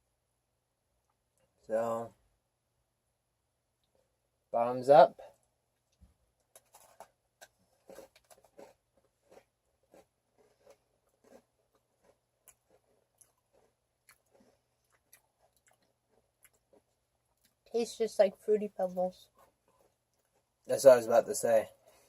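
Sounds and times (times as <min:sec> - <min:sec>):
faint cookie crunching and chewing: 0:00.9 - 0:01.7, 0:03.6 - 0:04.5, 0:05.2 - 0:17.8, 0:19.1 - 0:22.0.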